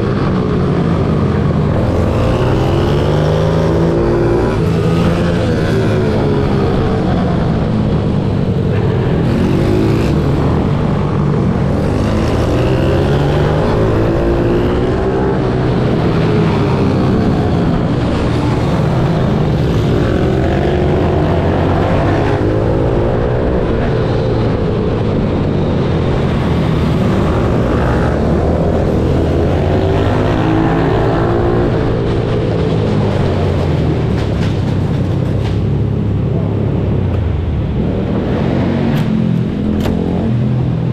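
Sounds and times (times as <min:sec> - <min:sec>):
motorbike engine revving: 0:00.6 - 0:23.1.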